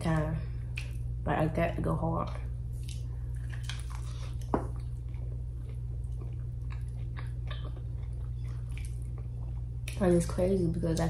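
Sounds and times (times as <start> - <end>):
steady low hum: 0.0 - 11.0
person chewing: 2.7 - 10.0.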